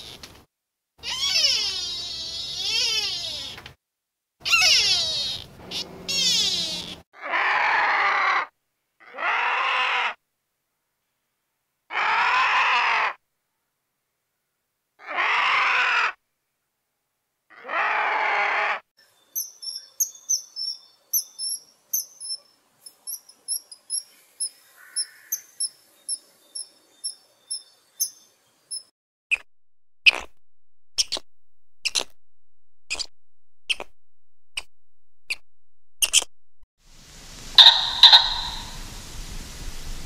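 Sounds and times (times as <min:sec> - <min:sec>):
harsh animal calls: 0:01.0 - 0:03.6, 0:04.4 - 0:10.2, 0:15.0 - 0:16.2, 0:17.5 - 0:18.8, 0:37.6 - 0:38.8
high-pitched bird chirps: 0:19.2 - 0:29.5, 0:36.0 - 0:36.3, 0:37.6 - 0:38.8.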